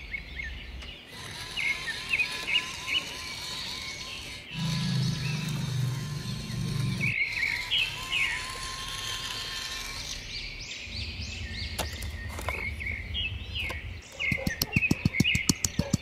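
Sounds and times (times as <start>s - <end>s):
low steady hum: 0.0s - 16.0s
small birds chirping: 0.0s - 16.0s
fast evenly spaced clicks: 14.3s - 16.0s.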